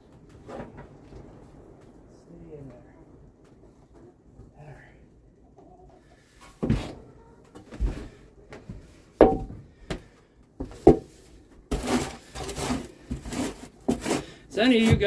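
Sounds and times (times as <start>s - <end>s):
shovel scraping on wooden floor: 10.7s - 15.0s.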